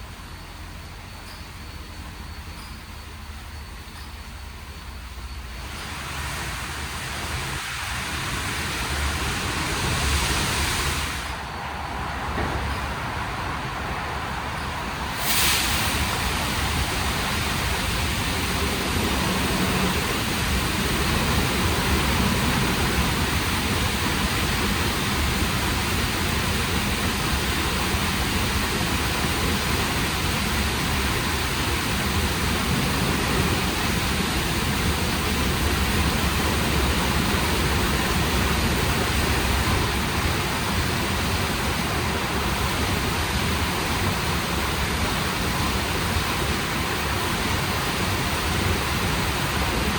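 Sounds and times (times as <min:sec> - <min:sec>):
car wash water jets spraying: 0:04.5 - 0:49.9.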